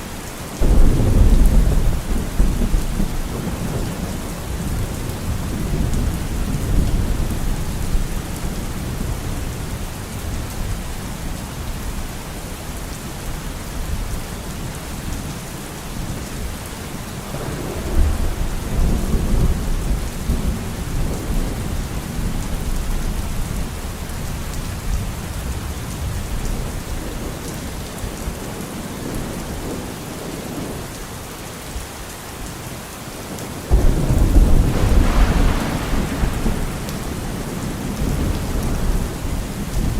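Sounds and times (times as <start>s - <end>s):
rain hissing: 0.0s - 10.4s, 11.3s - 30.8s, 32.6s - 39.9s
thunder rolling: 0.6s - 9.4s, 17.2s - 23.5s, 33.7s - 39.9s.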